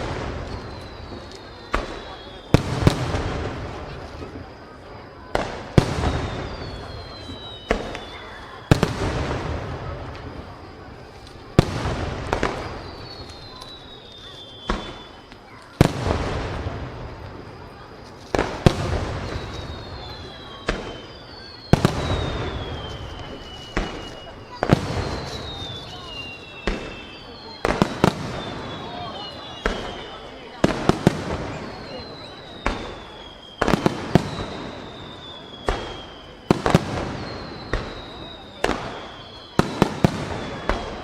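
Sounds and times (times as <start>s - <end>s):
falling whistling tones: 0.0s - 41.0s
firework shells booming: 0.0s - 41.0s.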